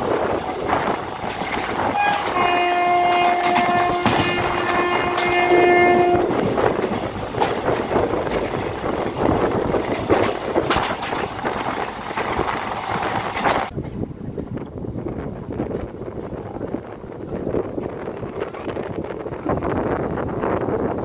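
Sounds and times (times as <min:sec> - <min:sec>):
train wheels clattering: 0:00.0 - 0:14.6
train horn: 0:01.9 - 0:06.4.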